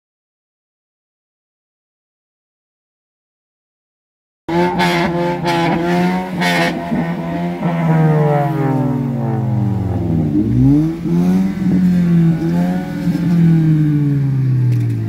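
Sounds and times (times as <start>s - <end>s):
car engine revving: 4.5s - 15.0s.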